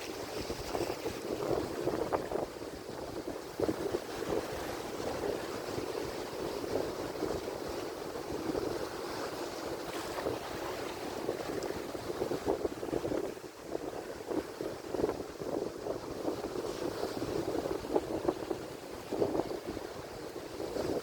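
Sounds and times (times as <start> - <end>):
waves crashing: 0.0 - 21.0
wind buffeting microphone: 0.0 - 21.0.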